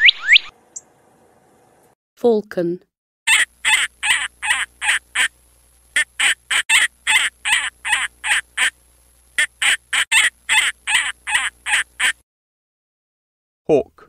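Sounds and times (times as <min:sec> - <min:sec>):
falcon cackling calls: 0:03.3 - 0:05.3, 0:06.0 - 0:08.7, 0:09.4 - 0:12.2.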